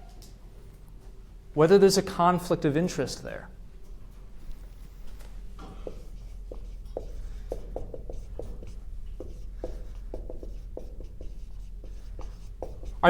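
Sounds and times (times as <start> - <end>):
chalk tapping and scratching on board: 4.9 - 13.0.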